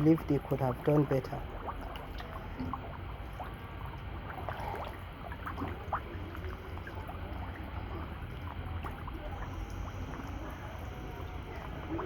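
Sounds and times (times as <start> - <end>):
fish plopping and slurping: 0.0 - 12.0
water sloshing and gurgling: 0.0 - 12.0.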